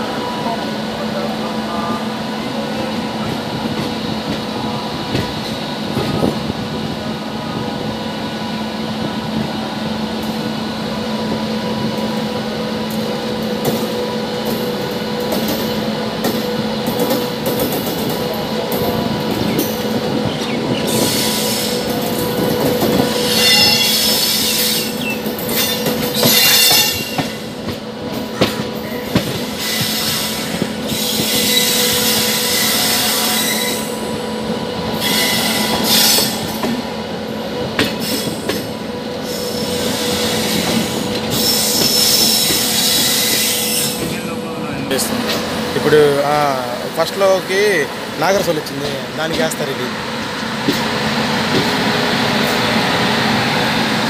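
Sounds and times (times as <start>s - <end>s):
train hum: 0.0s - 54.0s
harsh wheel squeal: 29.6s - 34.0s, 39.2s - 44.2s.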